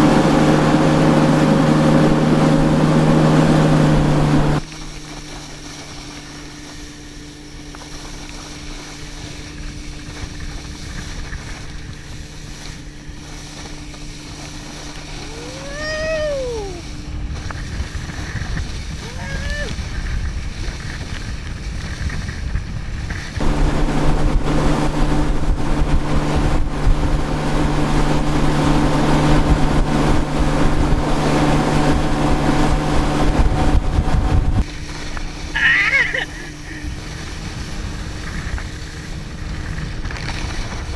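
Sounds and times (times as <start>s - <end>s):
motorboat engine humming: 0.0s - 4.7s, 23.4s - 34.7s.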